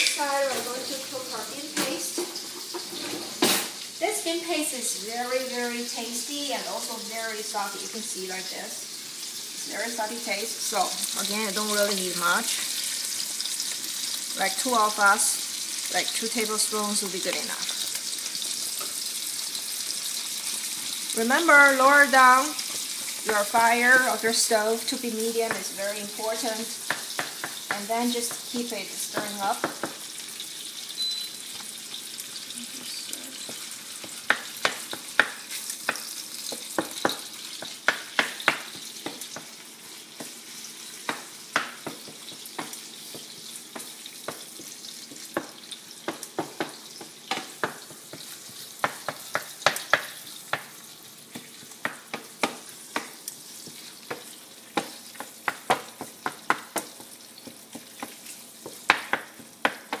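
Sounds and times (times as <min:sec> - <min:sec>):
meat sizzling in oil: 0:00.0 - 1:00.0
wooden spatula scraping a pan: 0:01.8 - 0:03.4.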